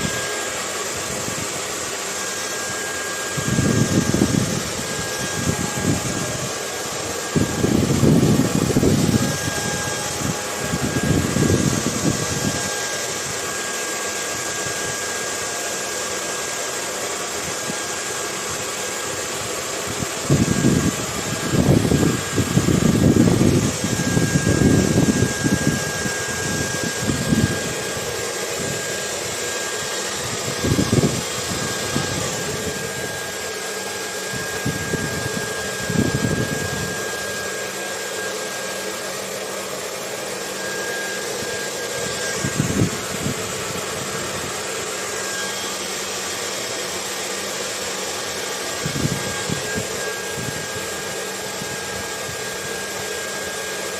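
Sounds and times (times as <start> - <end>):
hair dryer running: 0.0 - 53.9
low wind rumble: 3.3 - 6.7, 7.3 - 13.4, 19.9 - 29.3, 42.0 - 44.5.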